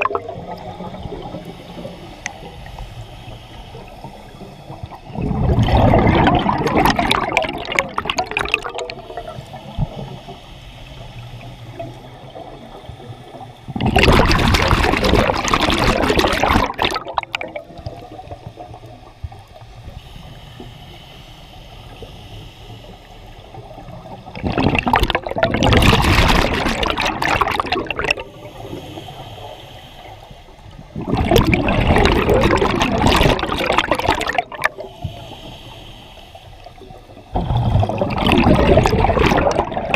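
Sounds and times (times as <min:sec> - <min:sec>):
diver's bubbles gurgling underwater: 0:00.0 - 0:02.6, 0:03.8 - 0:10.2, 0:11.8 - 0:19.6, 0:23.5 - 0:28.3, 0:30.8 - 0:35.1, 0:37.1 - 0:39.9.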